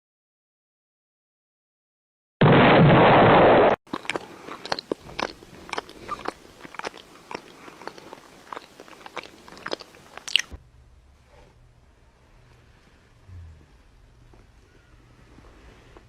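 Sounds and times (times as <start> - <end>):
crunchy chewing: 3.9 - 10.5.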